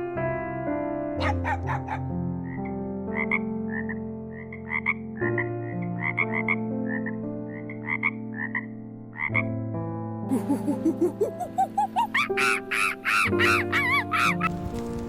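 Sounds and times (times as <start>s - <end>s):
soft background music chords: 0.0s - 15.0s
frog croaking: 1.2s - 9.6s, 10.9s - 14.5s.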